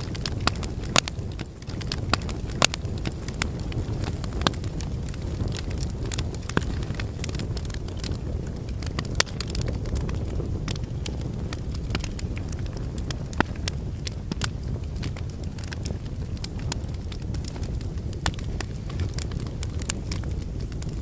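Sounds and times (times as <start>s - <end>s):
fire crackles and pops: 0.0s - 21.0s
low rumble of flames: 0.0s - 21.0s.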